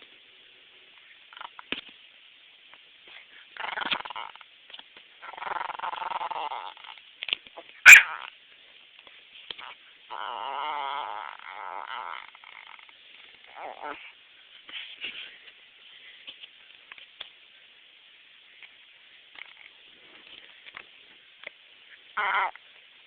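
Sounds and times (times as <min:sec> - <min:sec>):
dog growling: 0:03.6 - 0:04.5, 0:05.2 - 0:07.0, 0:09.6 - 0:14.1, 0:22.2 - 0:22.6.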